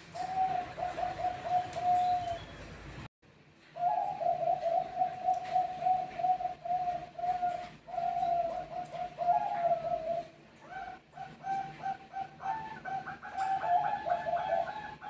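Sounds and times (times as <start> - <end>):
dove cooing: 0.0 - 2.6, 3.8 - 15.0.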